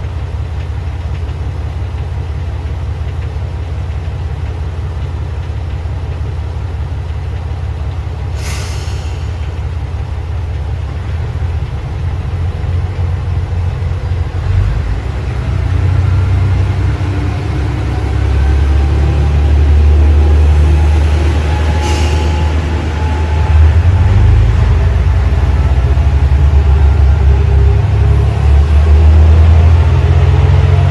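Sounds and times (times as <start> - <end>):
diesel railcar engine droning: 0.0 - 30.9
short hisses of air: 8.3 - 9.5, 21.7 - 22.5.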